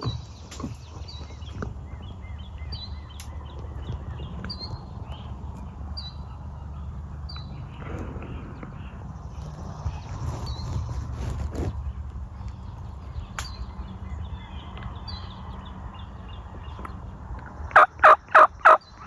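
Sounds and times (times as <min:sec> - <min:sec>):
small bird chirping: 0:00.0 - 0:19.0
wind rumble on microphone: 0:00.0 - 0:19.0.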